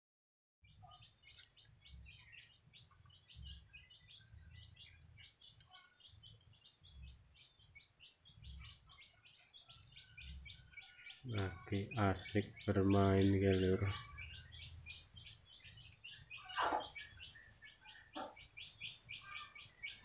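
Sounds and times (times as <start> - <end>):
small birds chirping: 0.6 - 20.0.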